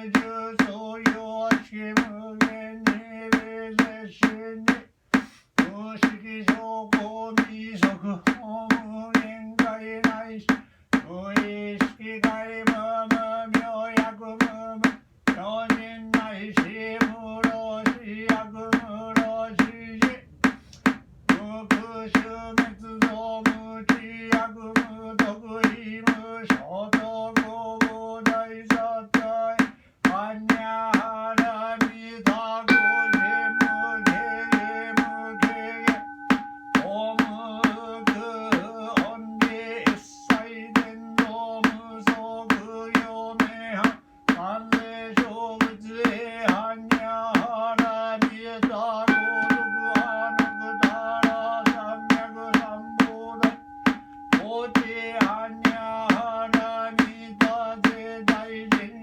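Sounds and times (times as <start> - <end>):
knocks on wooden drum: 0.1 - 58.9
monotone chanting: 32.3 - 59.0.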